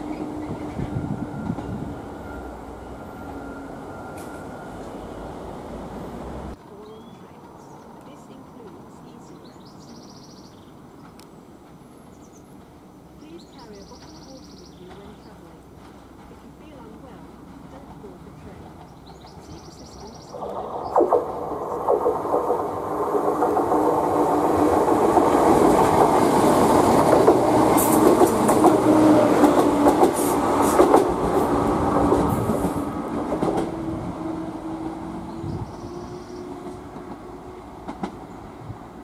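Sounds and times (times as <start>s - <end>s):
train engines humming: 0.0s - 10.1s, 10.7s - 39.0s
wheels clicking over rail joints: 11.0s - 20.2s, 22.2s - 33.8s.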